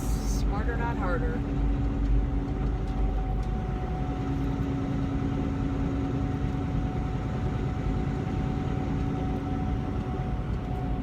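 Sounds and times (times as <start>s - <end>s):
constant hum: 0.0s - 11.0s
road rumble: 0.0s - 11.0s
truck engine drone: 0.0s - 11.0s.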